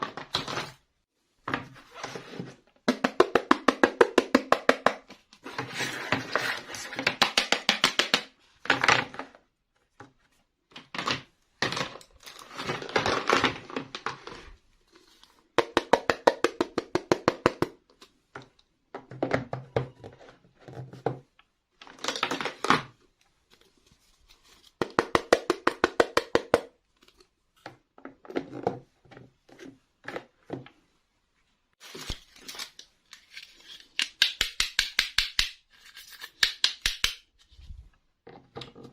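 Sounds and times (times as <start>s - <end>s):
toy packaging being opened: 31.8s - 34.2s.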